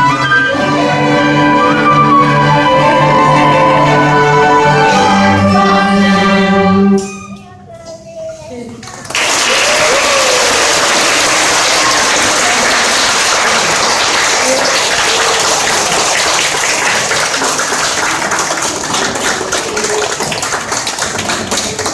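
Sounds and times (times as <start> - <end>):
audience applauding: 9.0 - 21.9.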